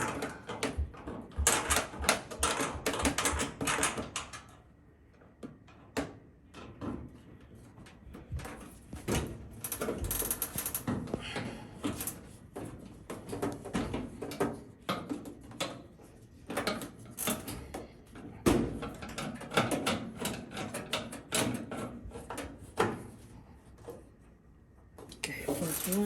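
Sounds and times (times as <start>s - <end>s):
hand tools being handled: 25.3s - 26.0s
metal parts clicking and rattling: 25.5s - 26.0s.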